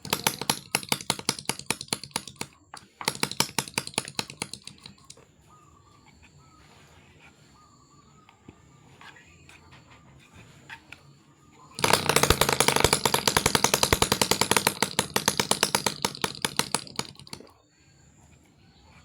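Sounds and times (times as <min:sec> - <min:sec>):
small engine firing in clicking pops: 0:00.0 - 0:05.2, 0:11.7 - 0:17.6.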